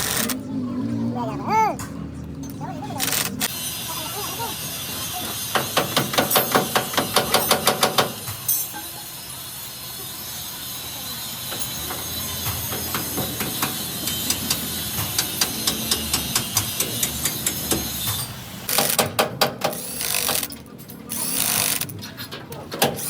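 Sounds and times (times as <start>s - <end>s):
power tool bursts on metal: 4.6s - 21.9s.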